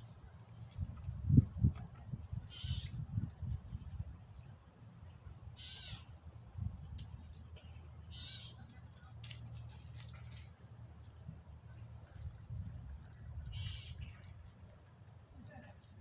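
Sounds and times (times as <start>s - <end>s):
bird harsh rasping calls: 2.5s - 3.0s, 5.6s - 6.1s, 8.1s - 8.6s, 13.5s - 14.1s
faint high bird chirps: 8.1s - 9.2s.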